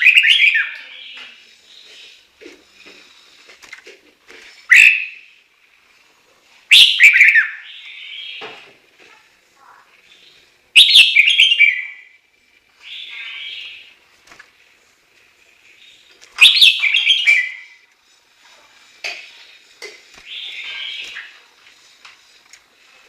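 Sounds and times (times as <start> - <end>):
bird singing whistled phrases: 0.0 - 1.2, 4.7 - 5.2, 6.7 - 8.4, 10.8 - 12.1, 16.4 - 17.8.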